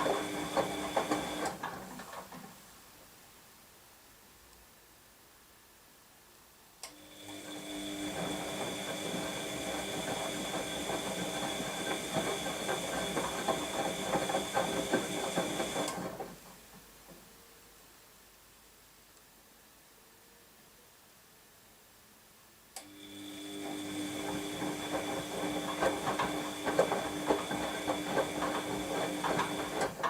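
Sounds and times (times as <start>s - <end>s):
washing machine motor whine and rattling: 0.0s - 2.3s, 7.0s - 16.4s, 22.9s - 30.0s.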